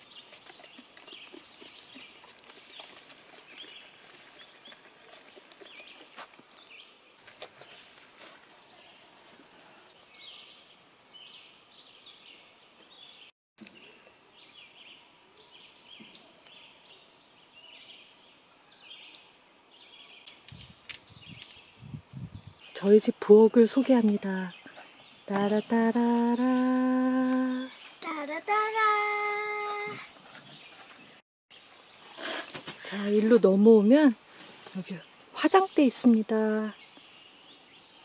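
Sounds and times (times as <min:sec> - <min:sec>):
songbirds chirping and singing: 0:10.1 - 0:33.4.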